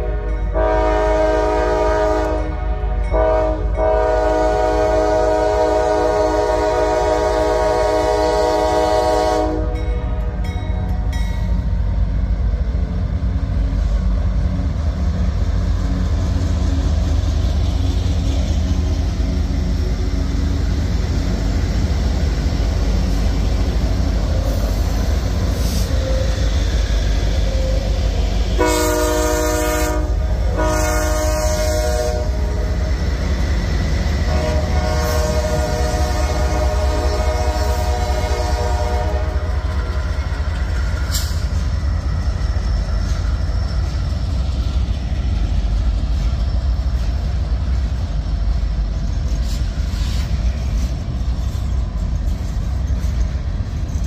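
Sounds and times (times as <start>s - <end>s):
locomotive air horn: 0.0s - 10.4s, 27.5s - 32.8s, 34.2s - 40.0s
diesel locomotives rumbling: 0.0s - 54.0s.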